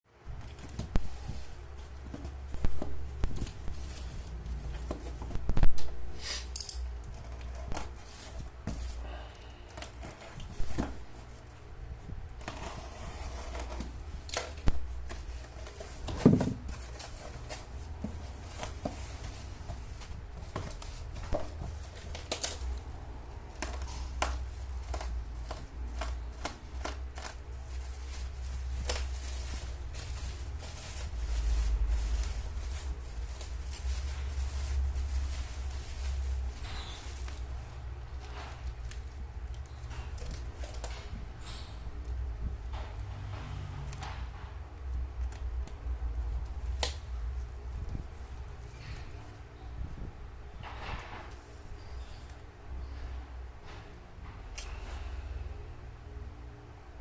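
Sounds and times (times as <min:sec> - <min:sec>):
packaging rustling and tearing: 0:12.3 - 0:41.1
clicks and taps of parcel: 0:23.5 - 0:27.4.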